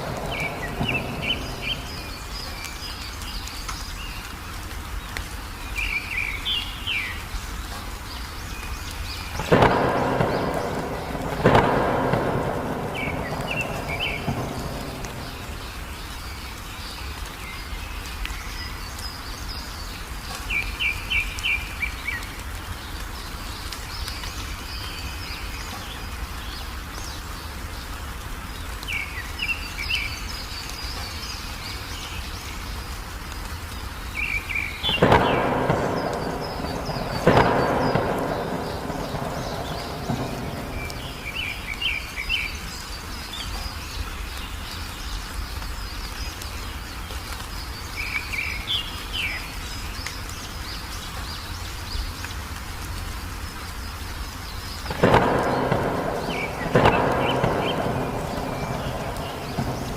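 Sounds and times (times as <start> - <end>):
thunderclaps rumbling: 0.0 - 3.4, 9.3 - 16.7, 34.3 - 42.9, 54.7 - 59.9
birds trilling: 0.0 - 3.6, 9.2 - 16.6, 34.2 - 42.7, 54.6 - 59.9
steady rain: 0.0 - 59.9.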